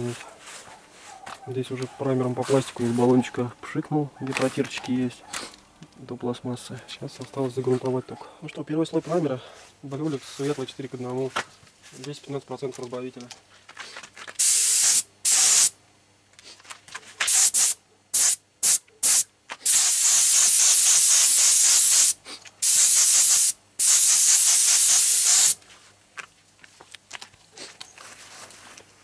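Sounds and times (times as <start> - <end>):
paint spray gun hissing: 14.4 - 15.8, 17.2 - 25.6.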